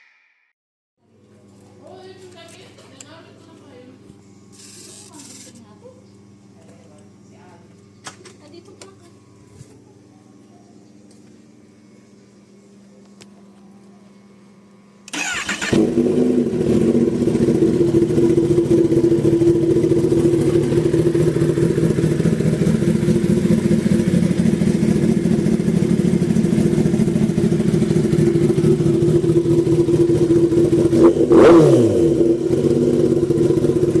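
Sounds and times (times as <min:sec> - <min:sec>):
motorcycle engine idling: 0:15.2 - 0:34.0.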